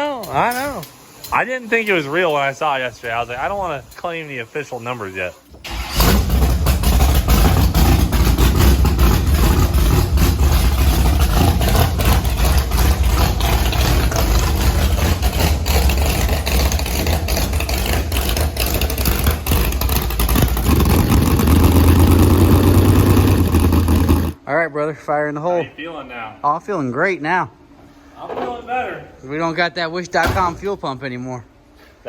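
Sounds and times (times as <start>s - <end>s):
engine idling with crackles: 5.7s - 24.4s.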